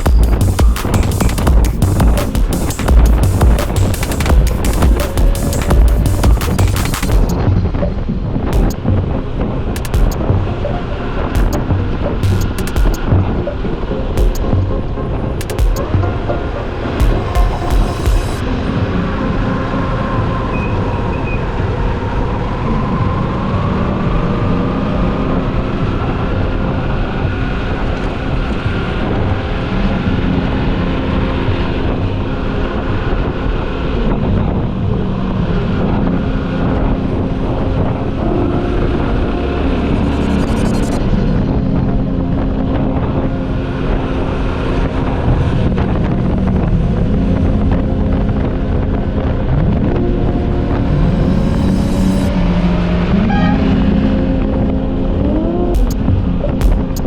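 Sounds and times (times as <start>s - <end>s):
wind rushing over microphone: 0.0s - 57.0s
motorcycle engine accelerating: 34.4s - 57.0s.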